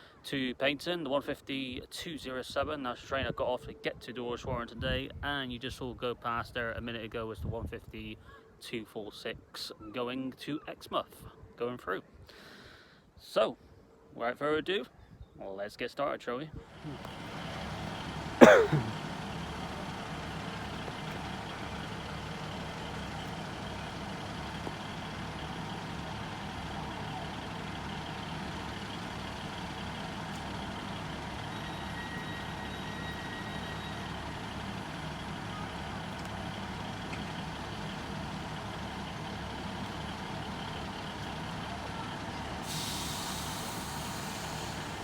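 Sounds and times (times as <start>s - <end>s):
engine rumbling: 16.6s - 45.0s.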